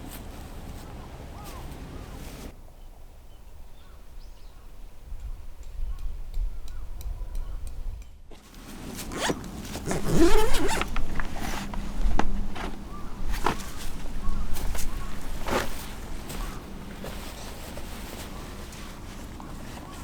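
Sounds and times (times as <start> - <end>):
zipper being pulled: 8.9 - 11.9.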